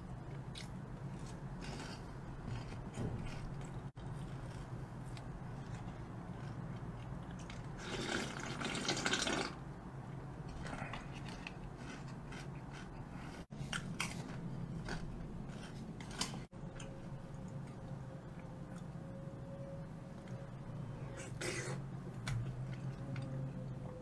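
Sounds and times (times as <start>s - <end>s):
person chewing food: 0.2s - 8.4s, 10.5s - 19.0s.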